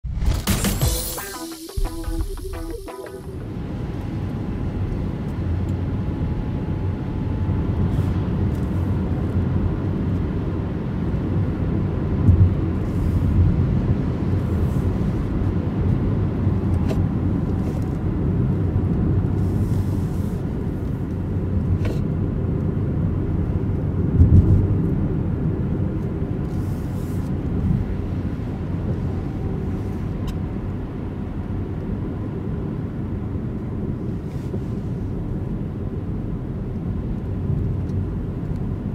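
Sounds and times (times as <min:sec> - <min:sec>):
faint steady whine: 0:01.2 - 0:09.7.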